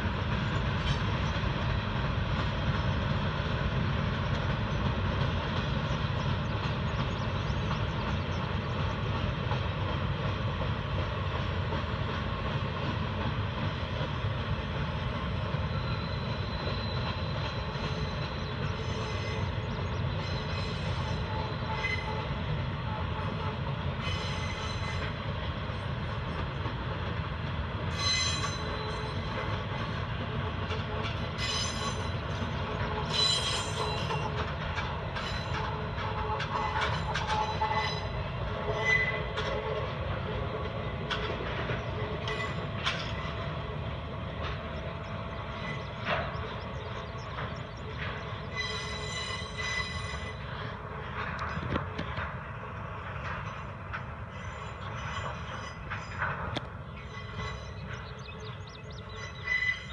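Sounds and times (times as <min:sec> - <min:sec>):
train wheels rumbling on rail: 0:00.0 - 0:59.9
metallic clanks and squeals: 0:15.7 - 0:22.4, 0:24.0 - 0:25.2, 0:27.9 - 0:29.9, 0:30.6 - 0:40.0, 0:41.0 - 0:43.6, 0:44.4 - 0:52.3, 0:53.1 - 0:59.9.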